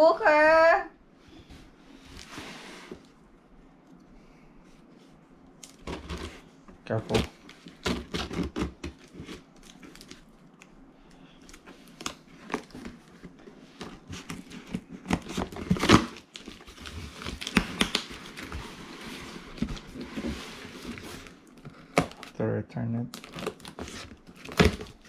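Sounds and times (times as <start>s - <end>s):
packaging crinkling and tearing: 7.0s - 22.4s, 23.1s - 25.0s.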